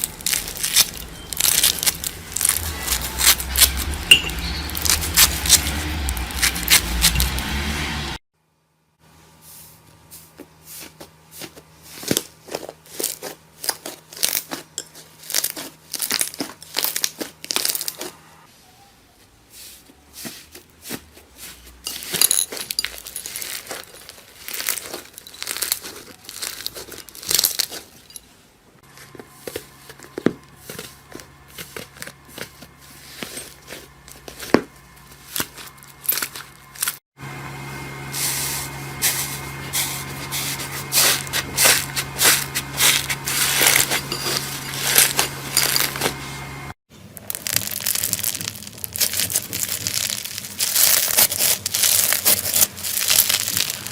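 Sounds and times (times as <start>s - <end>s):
low steady hum: 28.9s - 53.9s.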